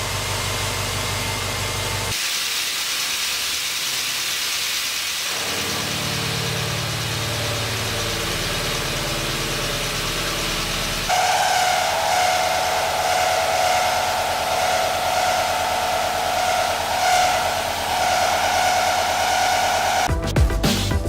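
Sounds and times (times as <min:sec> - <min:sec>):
machine cutting metal whine: 0:03.5 - 0:20.1
electronic music: 0:08.0 - 0:21.0.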